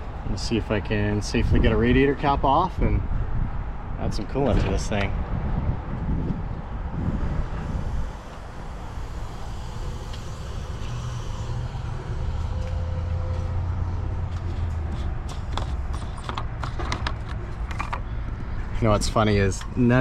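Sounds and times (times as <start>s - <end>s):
vehicle engine rumble: 0.0s - 20.0s
sharp clicks and knocks: 14.9s - 18.1s.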